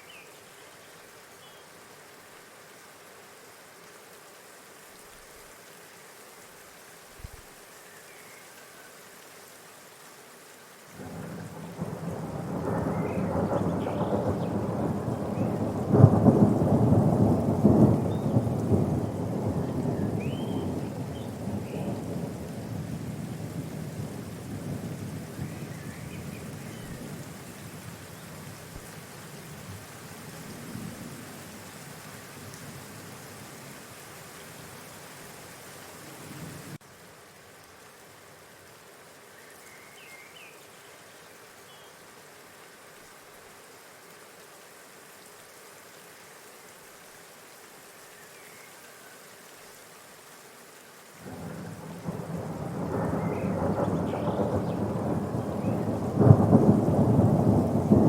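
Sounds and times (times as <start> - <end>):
rain hiss: 0.0 - 58.0
faint bird chirps: 19.9 - 22.0
thunder rolling: 51.3 - 58.0.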